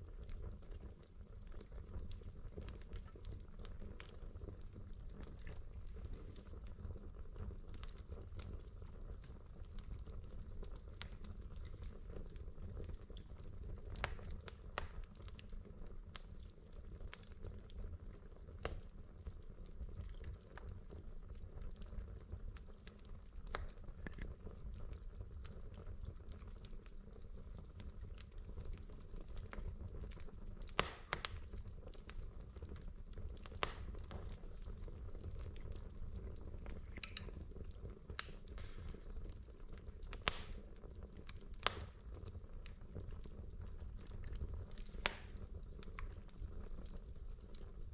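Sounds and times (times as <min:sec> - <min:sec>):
wood fire crackling: 0:00.0 - 0:47.9
logs popping: 0:30.7 - 0:31.5, 0:35.2 - 0:39.3, 0:40.1 - 0:40.7.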